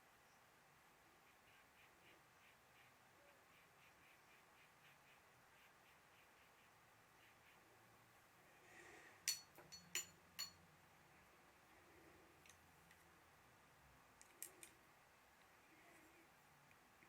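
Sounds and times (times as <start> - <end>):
sharp clicks with ringing tone: 9.3 - 10.6.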